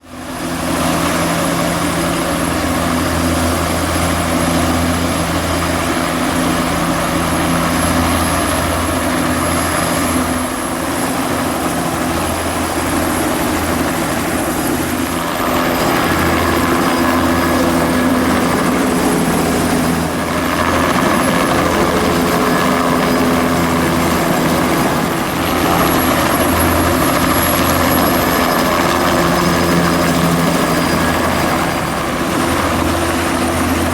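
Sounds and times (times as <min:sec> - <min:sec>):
helicopter rotor thrum: 0:00.1 - 0:33.9
high turbine whine: 0:00.1 - 0:33.9.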